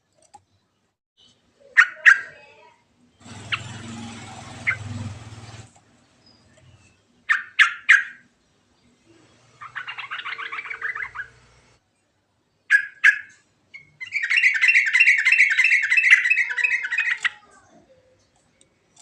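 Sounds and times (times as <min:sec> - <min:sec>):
bird singing with bubbling trill: 0:09.6 - 0:11.5, 0:12.7 - 0:17.5.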